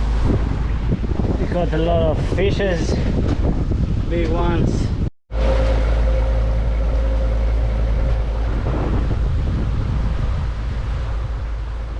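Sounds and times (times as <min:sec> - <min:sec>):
wind rumbling on microphone: 0:00.0 - 0:11.9
boat engine running: 0:05.3 - 0:11.9.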